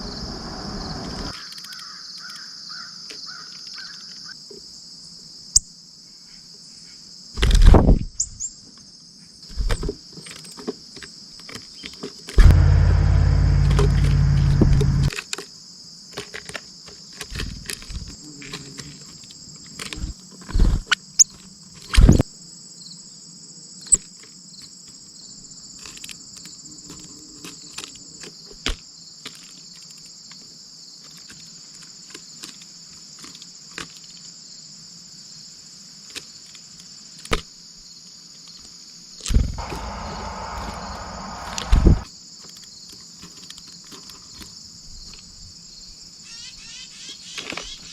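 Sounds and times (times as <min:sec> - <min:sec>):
loud low rumble: 0:00.0 - 0:01.3, 0:12.4 - 0:15.1, 0:39.4 - 0:42.0
crickets trilling: 0:00.0 - 0:06.2, 0:08.2 - 0:47.9.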